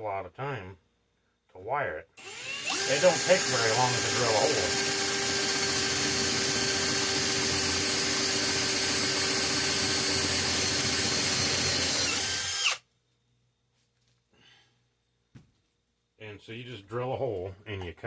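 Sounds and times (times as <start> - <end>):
electric drill boring metal: 2.2 - 12.8.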